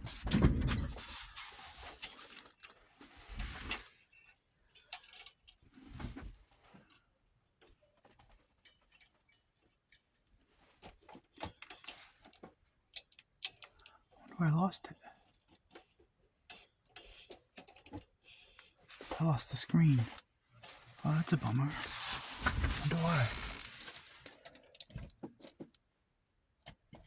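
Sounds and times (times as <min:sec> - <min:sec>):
light clicks and rattles: 0:04.1 - 0:05.7, 0:07.6 - 0:14.1, 0:14.9 - 0:19.2
loud rustling clatter: 0:21.7 - 0:24.4.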